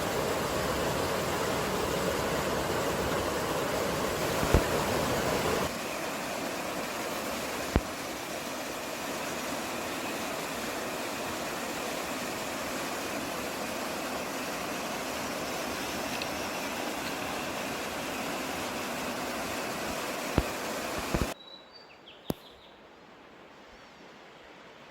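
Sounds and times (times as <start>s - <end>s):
running water: 0.0s - 21.4s
wind: 0.0s - 24.9s.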